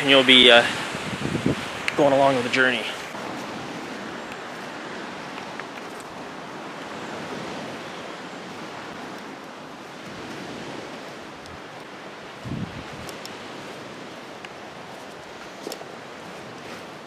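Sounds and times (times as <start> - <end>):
faint ticks: 13.0 - 13.4.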